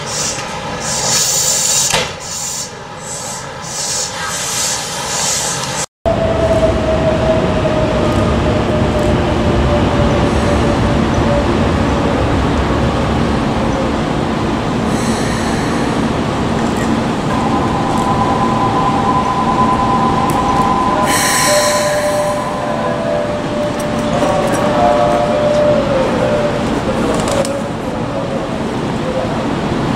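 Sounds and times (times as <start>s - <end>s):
electric train whine: 0.0s - 29.9s
high wheel squeal: 17.4s - 26.6s.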